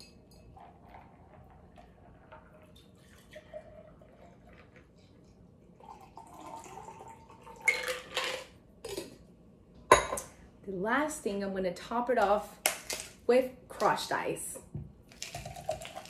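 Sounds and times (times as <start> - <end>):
liquid pouring and splashing: 0.6 - 8.1, 15.1 - 16.0.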